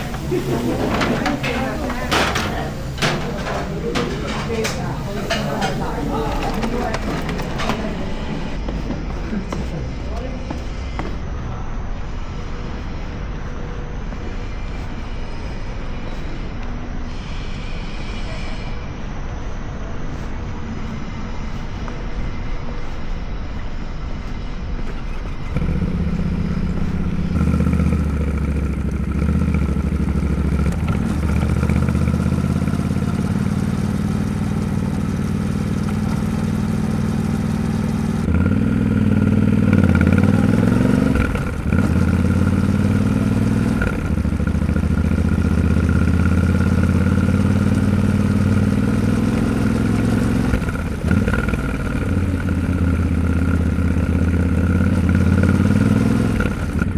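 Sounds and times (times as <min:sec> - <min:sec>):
motorcycle engine running: 0:00.0 - 0:11.3, 0:24.2 - 0:56.9.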